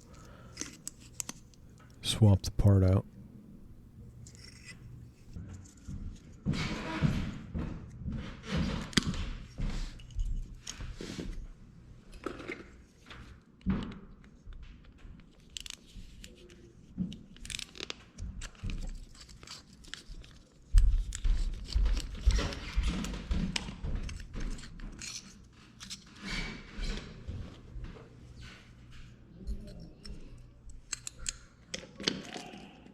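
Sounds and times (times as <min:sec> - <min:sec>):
small parts being handled: 0:00.0 - 0:02.0
rustling handling noise: 0:00.0 - 0:05.8.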